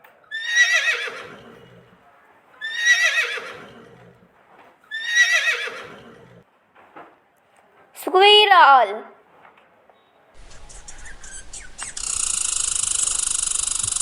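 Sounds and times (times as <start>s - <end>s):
horse whinnying: 0.3s - 2.0s, 2.6s - 4.3s, 4.9s - 6.4s, 10.4s - 14.0s.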